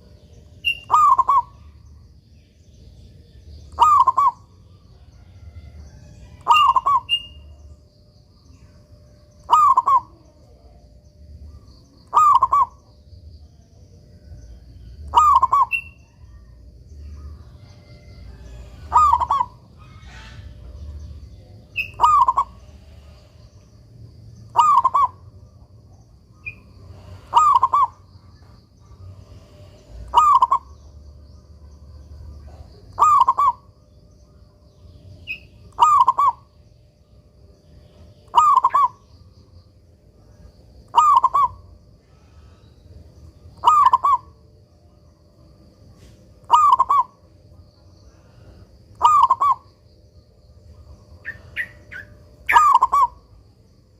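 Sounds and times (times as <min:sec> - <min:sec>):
dove cooing: 0:00.6 - 0:01.6, 0:03.7 - 0:04.5, 0:06.4 - 0:07.4, 0:09.4 - 0:10.2, 0:12.1 - 0:12.8, 0:15.1 - 0:16.4, 0:17.1 - 0:21.0, 0:21.7 - 0:23.3, 0:24.5 - 0:25.4, 0:26.4 - 0:30.8, 0:32.4 - 0:33.7, 0:35.3 - 0:36.5, 0:38.3 - 0:39.0, 0:40.9 - 0:41.7, 0:43.6 - 0:44.4, 0:46.4 - 0:47.2, 0:48.2 - 0:49.7, 0:51.2 - 0:53.2.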